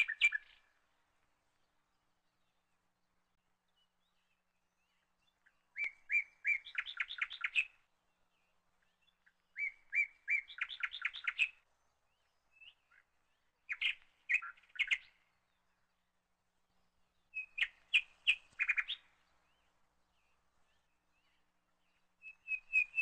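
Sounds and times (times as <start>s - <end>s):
songbird singing: 0.0s - 23.0s.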